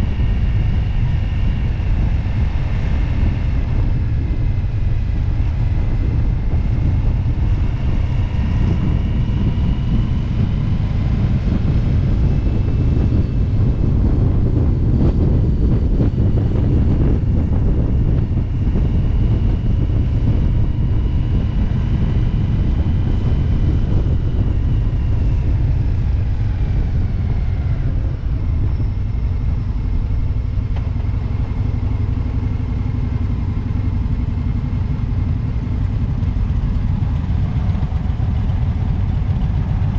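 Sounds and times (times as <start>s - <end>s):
faint whine: 0.0s - 39.9s
motorcycle engine rumble: 0.0s - 39.9s.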